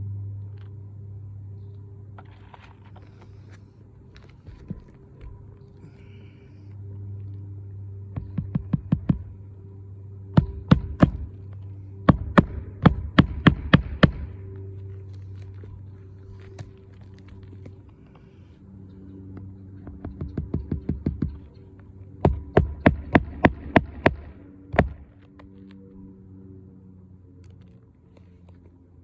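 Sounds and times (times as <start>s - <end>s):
steady low hum: 0.0s - 29.0s
hammer blows on shingle roof: 8.1s - 9.4s, 10.3s - 11.4s, 12.0s - 14.4s, 22.2s - 25.0s.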